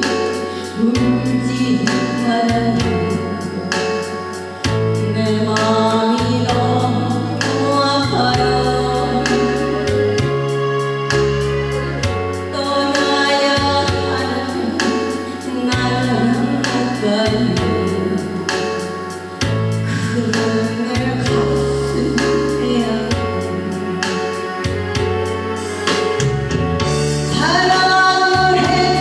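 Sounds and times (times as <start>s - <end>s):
pop song singing over a beat: 0.0s - 29.0s.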